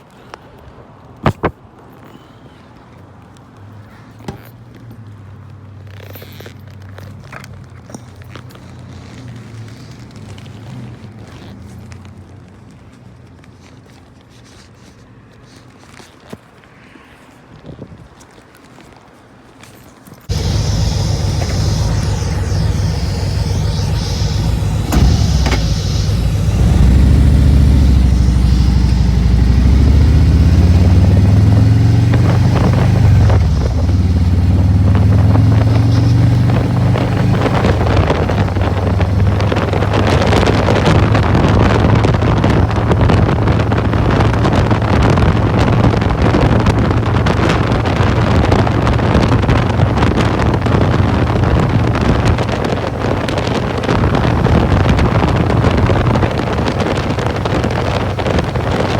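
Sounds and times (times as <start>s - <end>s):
motorcycle engine accelerating: 20.3s - 51.9s
wind buffeting on microphone: 36.2s - 58.9s.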